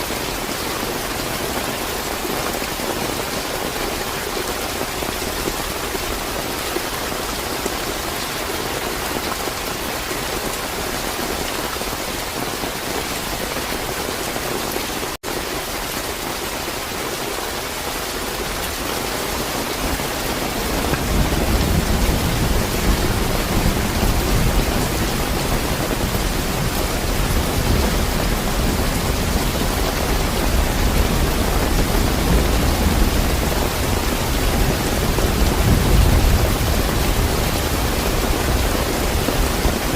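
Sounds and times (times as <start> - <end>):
heavy rain: 0.0 - 39.9
low thunder rumble: 20.6 - 39.9.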